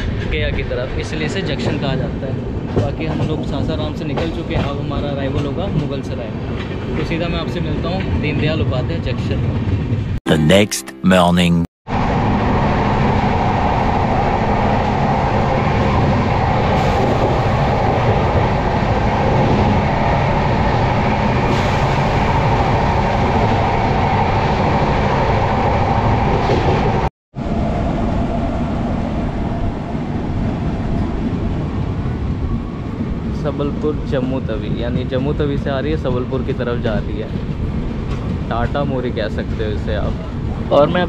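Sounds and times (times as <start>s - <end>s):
train wheels on track: 0.0s - 10.0s, 30.4s - 40.7s.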